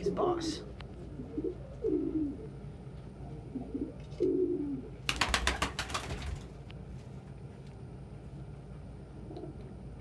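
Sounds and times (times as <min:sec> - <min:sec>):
pigeon cooing: 0:01.0 - 0:05.8.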